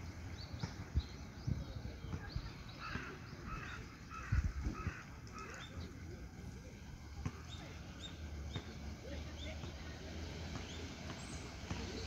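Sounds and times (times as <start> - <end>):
small birds chirping: 0.0 - 12.0
bird harsh calls: 2.4 - 6.0.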